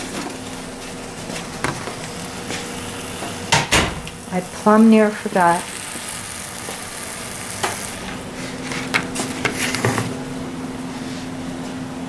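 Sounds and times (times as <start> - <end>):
meat sizzling in a skillet: 1.4 - 10.0.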